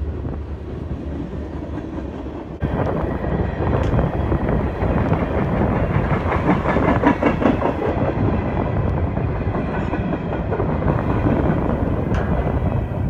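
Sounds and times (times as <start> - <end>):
freight train rolling past: 0.0 - 13.0
wheels clattering over rail joints: 9.0 - 13.0.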